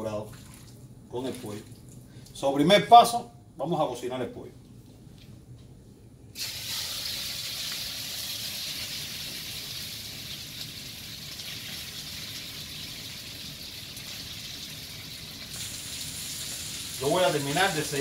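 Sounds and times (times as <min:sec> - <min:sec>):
chicken sizzling in skillet: 0:06.4 - 0:18.0.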